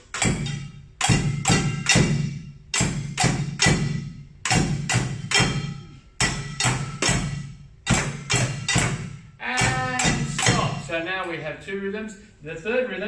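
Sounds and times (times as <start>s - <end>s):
sticks striking pots and bucket: 0.0s - 10.9s.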